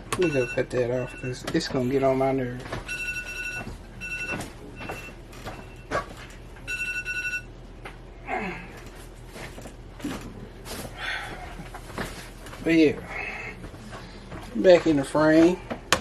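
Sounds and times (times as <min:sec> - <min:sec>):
kitchen timer beeping: 0:00.1 - 0:02.1, 0:06.7 - 0:07.5
knocks and clatter of handling: 0:02.5 - 0:06.5, 0:08.7 - 0:13.0.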